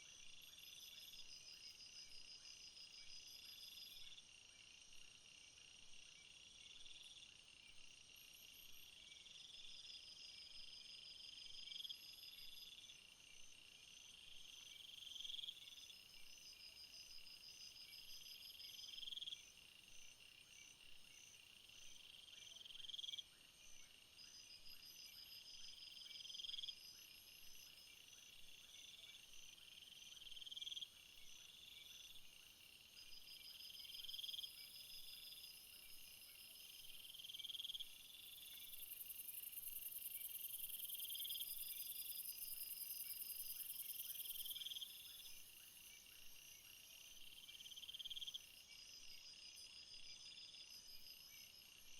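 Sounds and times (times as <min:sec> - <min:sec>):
cricket-like trills: 0:24.2 - 0:51.9
high shrill insect chorus: 0:33.4 - 0:46.0.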